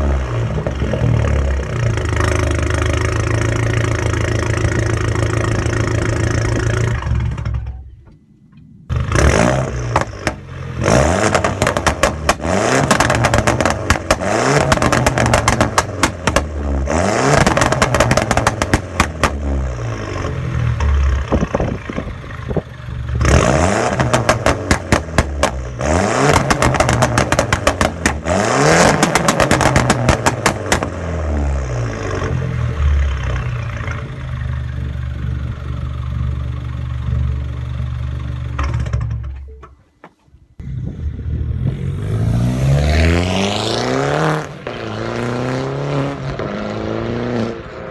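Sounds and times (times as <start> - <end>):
exhaust crackling and popping: 0.1 - 41.8
car engine revving: 8.9 - 39.1, 40.6 - 47.9.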